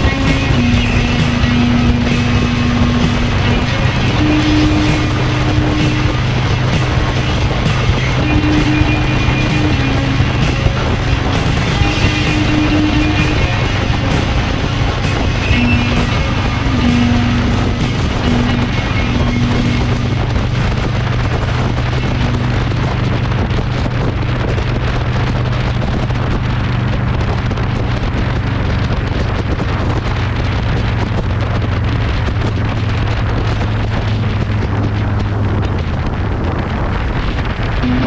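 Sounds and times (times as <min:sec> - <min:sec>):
motorcycle engine cruising: 0:00.0 - 0:25.5
wind rush on microphone: 0:00.0 - 0:38.0.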